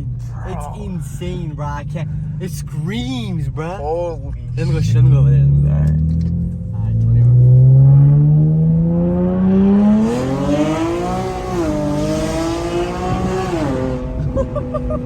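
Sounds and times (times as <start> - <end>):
car exhaust accelerating hard: 4.8 - 15.0.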